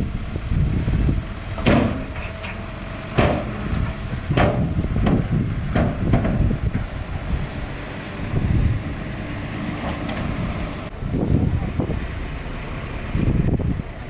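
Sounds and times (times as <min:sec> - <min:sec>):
bulldozer diesel engine: 0:00.0 - 0:14.0
sharp metal clanks: 0:01.6 - 0:05.2.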